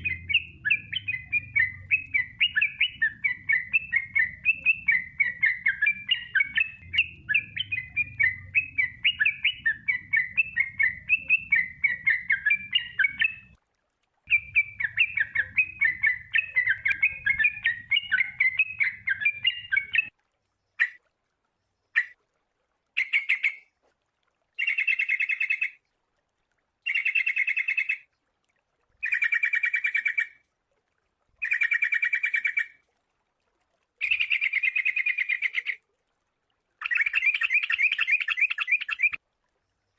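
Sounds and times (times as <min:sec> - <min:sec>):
bulbul chattering whistled song: 0:00.0 - 0:13.6, 0:14.3 - 0:20.1, 0:20.8 - 0:21.0, 0:21.9 - 0:22.2, 0:23.0 - 0:23.7, 0:24.6 - 0:25.8, 0:26.8 - 0:28.1, 0:29.0 - 0:30.4, 0:31.4 - 0:32.8, 0:34.0 - 0:35.8, 0:36.8 - 0:39.2.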